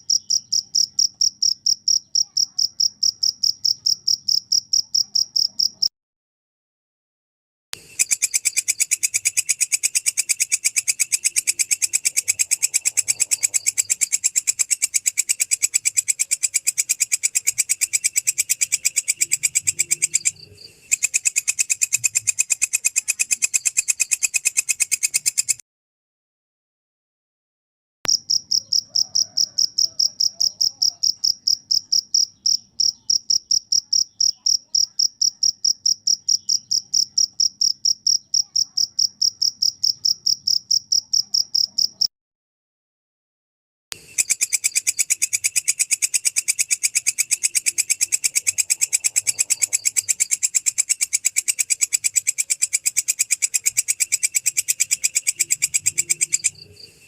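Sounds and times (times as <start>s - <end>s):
cricket chirping: 0.0s - 5.9s, 7.8s - 25.6s, 28.1s - 42.1s, 44.0s - 57.0s
insect hissy pulsing call: 44.0s - 57.0s.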